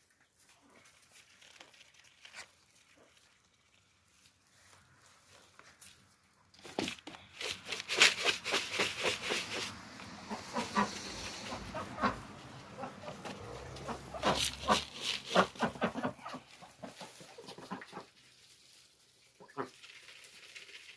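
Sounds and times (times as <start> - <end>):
chickens clucking: 7.6 - 18.2.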